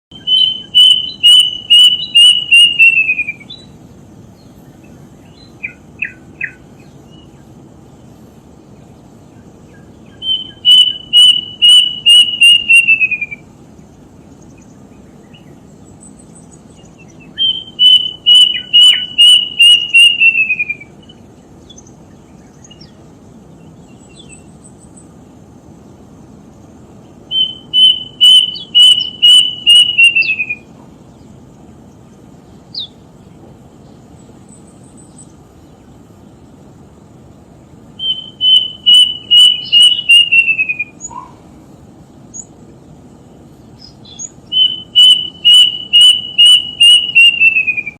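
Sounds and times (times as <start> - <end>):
songbird singing: 0.0 - 47.9.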